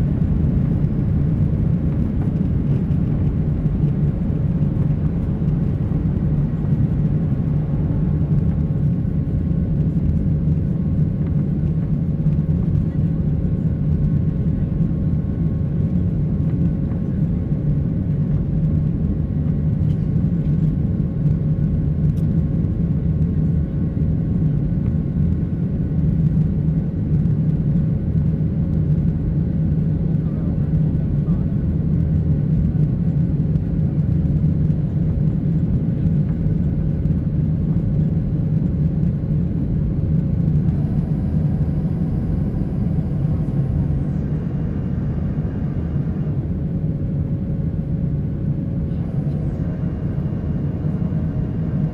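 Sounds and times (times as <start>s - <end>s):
jet engine rumble in cabin: 0.0s - 51.9s
faint high whine: 40.2s - 51.9s.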